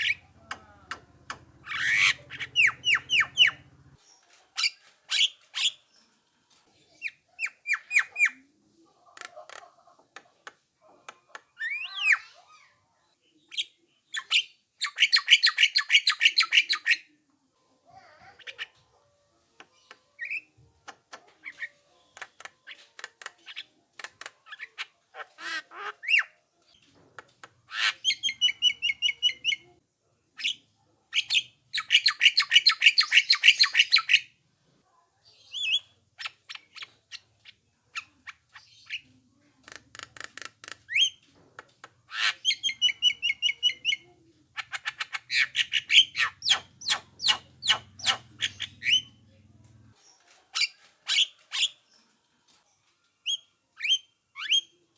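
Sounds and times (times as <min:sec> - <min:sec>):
harsh rasping bird chatter: 0:00.0 - 0:04.0, 0:27.4 - 0:29.7, 0:31.2 - 0:34.3, 0:35.4 - 0:49.2
myna calling with sharp clicks: 0:00.0 - 0:04.0.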